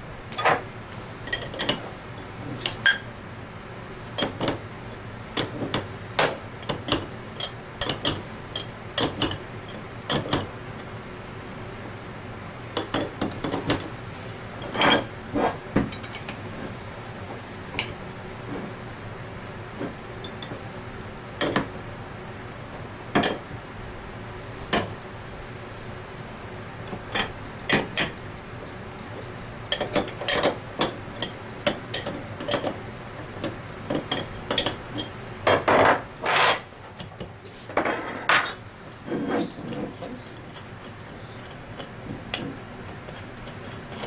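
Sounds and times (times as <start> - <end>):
metal parts clinking and tapping: 5.4 - 10.5, 29.7 - 32.8.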